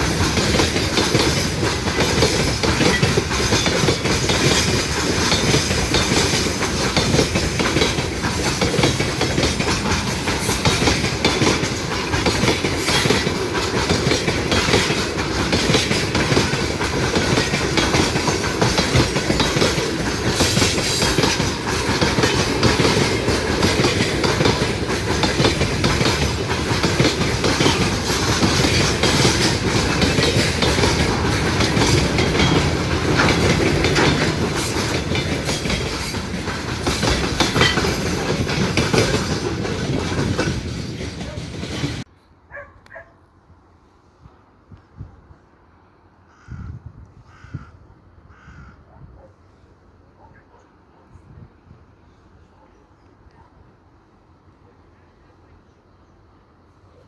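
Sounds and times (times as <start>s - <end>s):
train wheels clattering over rail joints: 0.0s - 42.1s.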